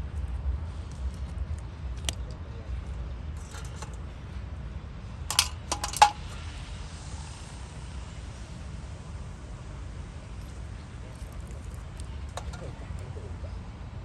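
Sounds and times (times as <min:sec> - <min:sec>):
steady low rumble: 0:00.0 - 0:14.0
metallic clinks and knocks: 0:05.3 - 0:06.3.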